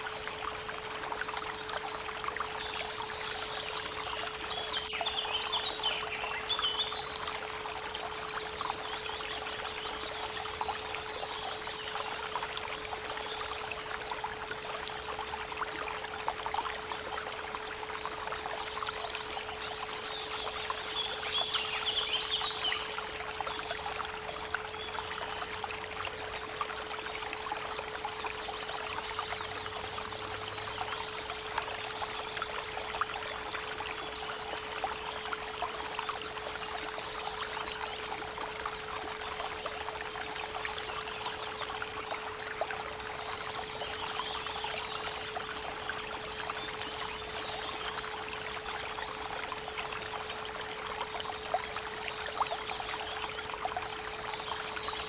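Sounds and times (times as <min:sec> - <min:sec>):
small birds trilled chirps: 0:00.0 - 0:14.8, 0:16.6 - 0:48.2
constant pure tone: 0:00.0 - 0:55.0
creek water running: 0:00.0 - 0:55.0.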